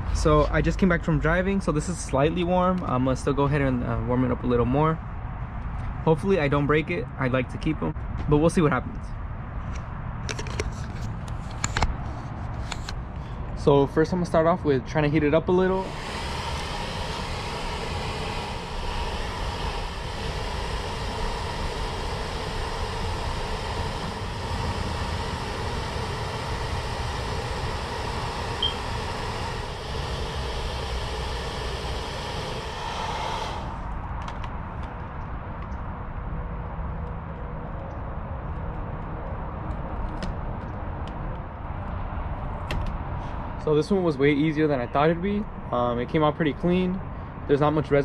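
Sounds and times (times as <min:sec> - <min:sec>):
low rumble: 0:00.0 - 0:02.5
hair dryer blowing: 0:15.2 - 0:34.0.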